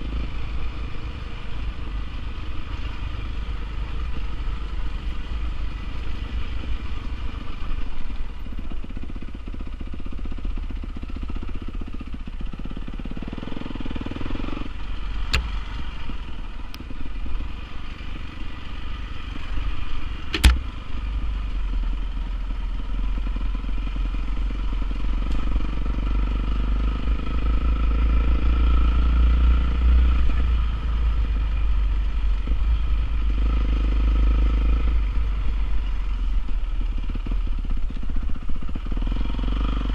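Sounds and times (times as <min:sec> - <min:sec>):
sharp click: 0:20.3 - 0:20.6.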